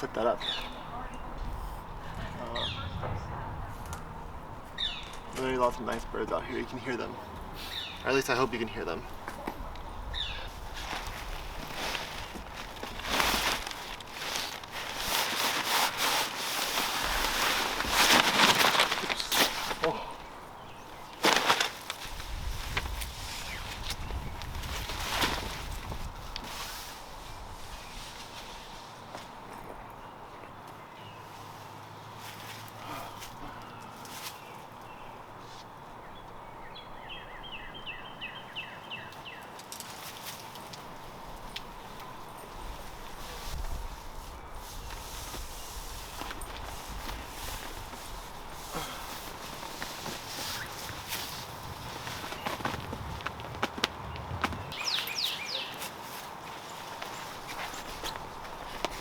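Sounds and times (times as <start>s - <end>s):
outdoor hiss: 5.3s - 9.1s
rustling and rubbing of hide: 10.3s - 29.5s, 39.8s - 59.0s
clicks and rustles: 10.8s - 19.9s, 49.1s - 55.2s
songbird whistling: 54.7s - 55.8s.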